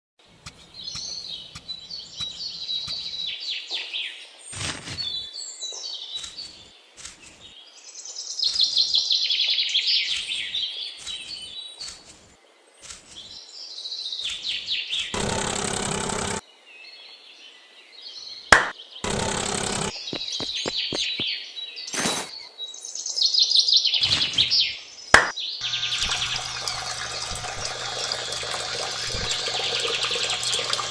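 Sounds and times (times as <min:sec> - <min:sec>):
small birds chirping and trilling: 0:00.3 - 0:30.9.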